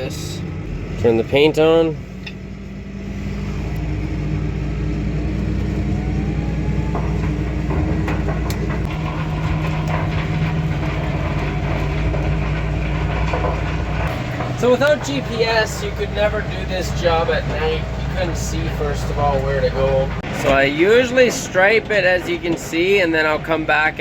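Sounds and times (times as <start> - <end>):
tractor engine under load: 0.0 - 24.0
clicks and rattles: 6.8 - 23.2.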